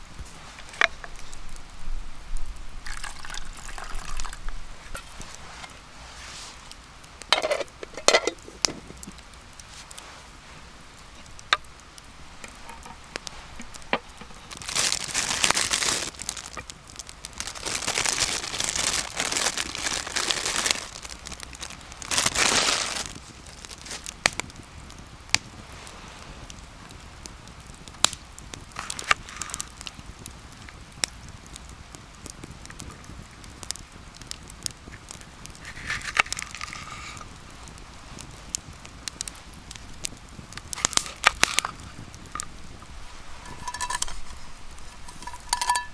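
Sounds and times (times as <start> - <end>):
rustling and crinkling: 0.0 - 1.8, 2.4 - 24.6, 28.6 - 30.0, 34.4 - 45.9
campfire crackling: 0.0 - 45.9
sharp pops of fire: 0.0 - 45.9.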